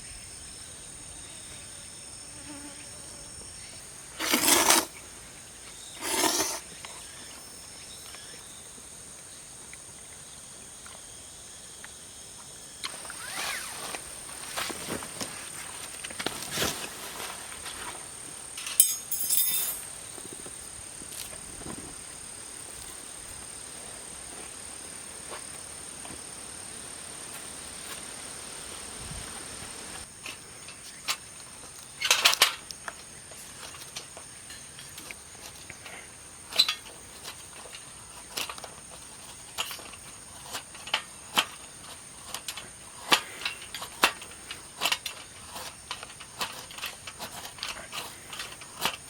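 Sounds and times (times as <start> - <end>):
insects droning: 0.0 - 49.0
rustling: 12.8 - 22.0.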